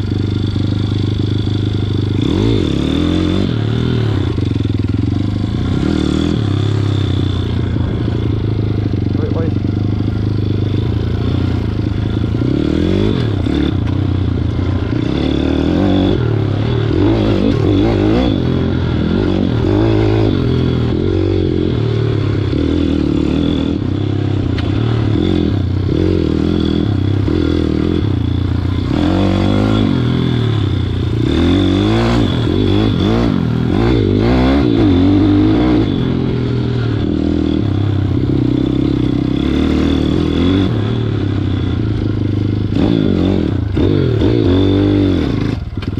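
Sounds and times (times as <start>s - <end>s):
motorbike engine revving: 0.0s - 45.9s.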